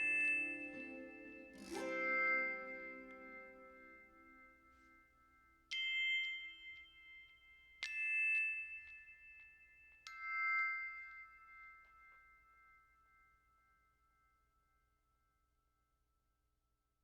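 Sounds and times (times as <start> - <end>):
bell-like chime notes: 0.0 - 13.3.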